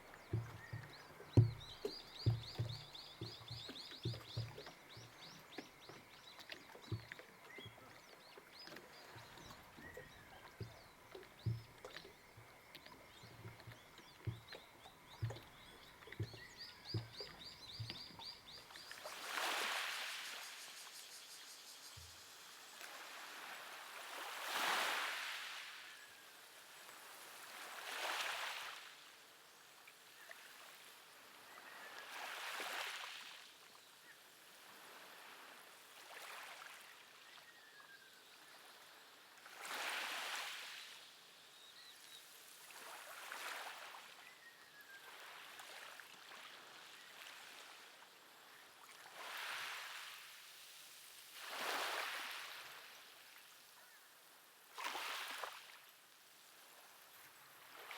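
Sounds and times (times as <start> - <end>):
waves washing onto shore: 0.0 - 6.0, 15.2 - 21.1, 22.1 - 25.9, 26.9 - 29.0
soft low thumps: 0.2 - 6.1, 10.5 - 12.6, 13.2 - 18.5.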